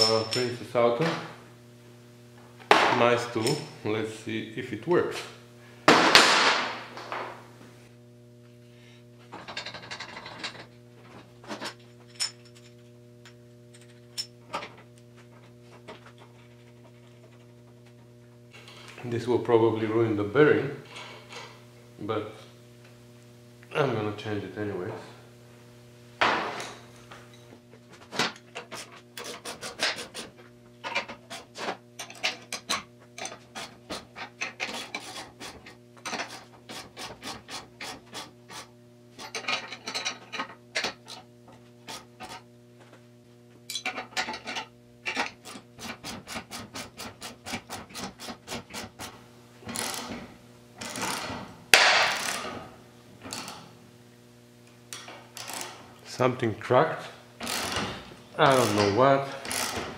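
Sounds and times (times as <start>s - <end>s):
hand tool rasping strokes: 28.6s - 30.4s, 31.1s - 31.7s, 33.2s - 39.5s, 41.8s - 42.5s, 45.1s - 50.2s.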